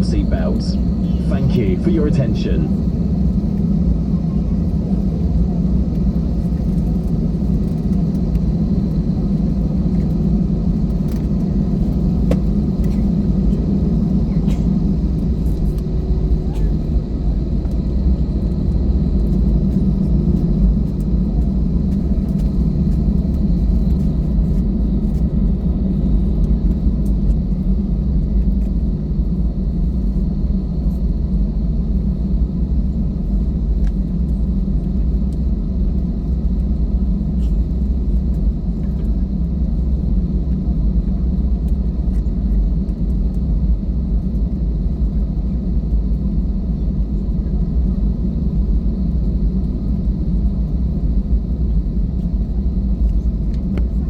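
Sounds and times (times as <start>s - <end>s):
faint high whine: 0.0s - 3.0s
airplane cabin rumble: 0.0s - 54.0s.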